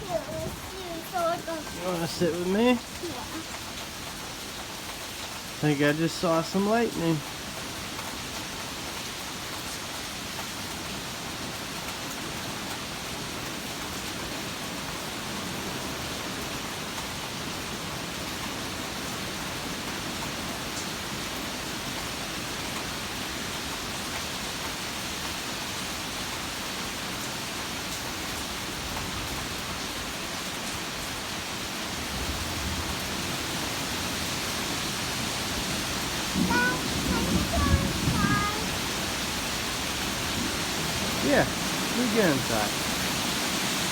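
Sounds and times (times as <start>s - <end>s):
steady rain falling: 0.0s - 43.9s
low thunder rumble: 36.3s - 41.7s.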